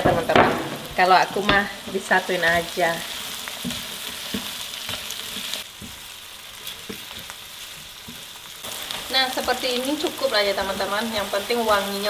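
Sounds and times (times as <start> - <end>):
onion and garlic sizzling in oil: 0.0 - 12.0
utensil stirring and knocking pan: 0.0 - 12.0.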